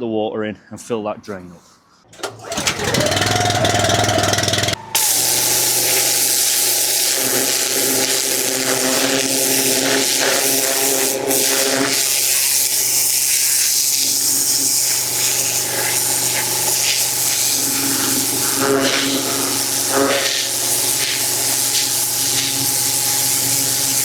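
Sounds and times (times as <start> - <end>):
pressure washer motor hum: 2.1 - 24.0
pressure washer water jet hissing: 2.8 - 24.0.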